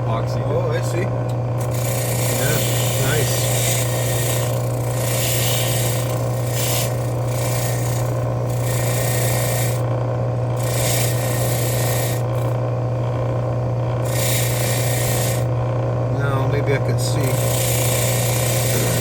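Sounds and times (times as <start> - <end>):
bench tool motor humming: 0.0 - 19.0
metal rasping against tool: 1.6 - 9.9, 10.6 - 12.6, 14.0 - 15.5, 16.3 - 19.0.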